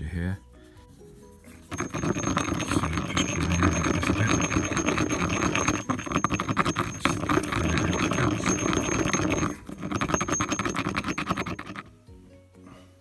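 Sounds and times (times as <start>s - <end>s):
pestle grinding pigment in stone mortar: 1.6s - 11.9s.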